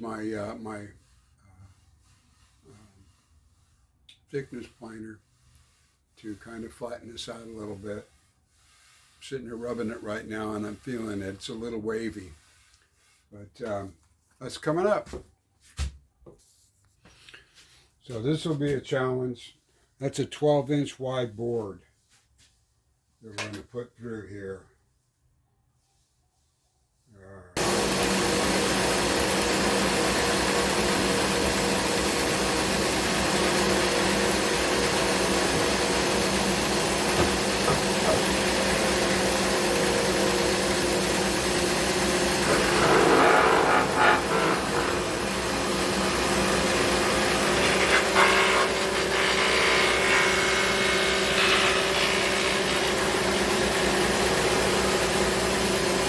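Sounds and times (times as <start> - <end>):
planer knives cutting wood: 27.6 - 56.0
thickness planer running: 27.6 - 56.0.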